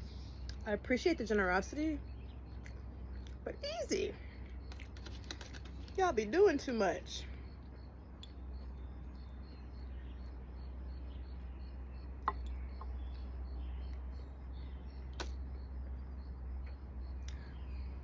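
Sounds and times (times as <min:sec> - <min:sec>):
sharp clicks: 0:15.1 - 0:15.4.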